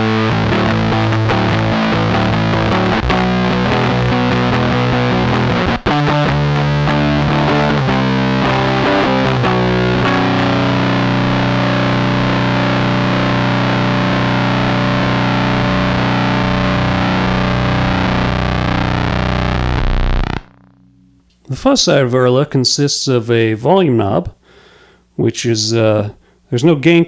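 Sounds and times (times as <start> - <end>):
fuzzed electric guitar: 0.0 - 21.6.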